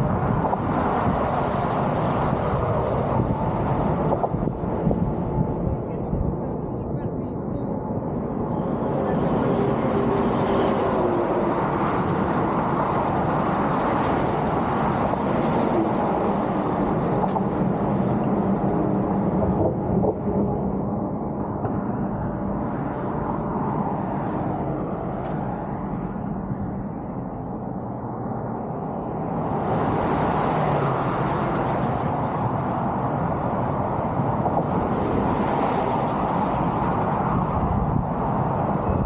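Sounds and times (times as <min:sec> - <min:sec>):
road noise: 0:00.0 - 0:39.0
vehicle engine rumble: 0:00.0 - 0:39.0.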